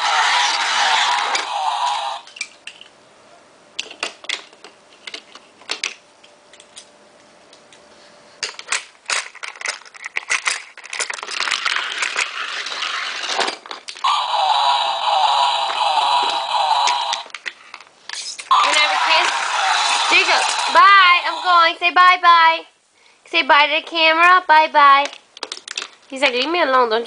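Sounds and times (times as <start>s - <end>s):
toy cars clicking and clattering: 8.4s - 14.1s, 16.2s - 21.0s, 25.0s - 27.0s.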